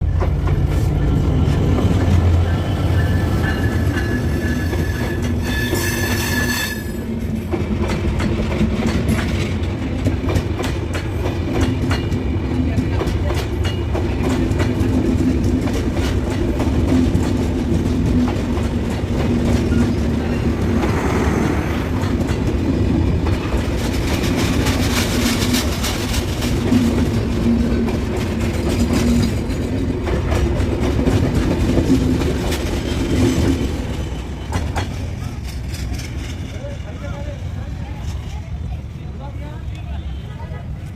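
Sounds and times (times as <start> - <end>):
train rumbling past: 0.0 - 40.9
wheels clattering over rail joints: 21.8 - 38.7.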